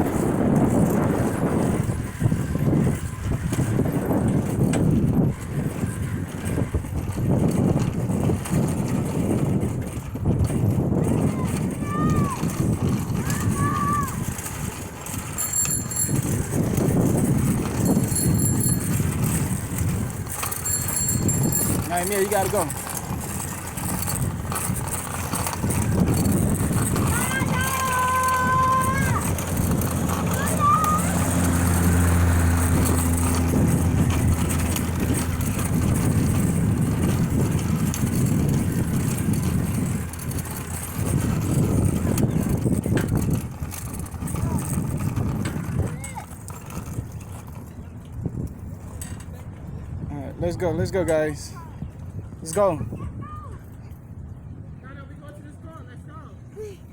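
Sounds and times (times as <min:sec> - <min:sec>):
wind and road noise: 0:00.0 - 0:56.9
vehicle engine running: 0:14.8 - 0:45.5.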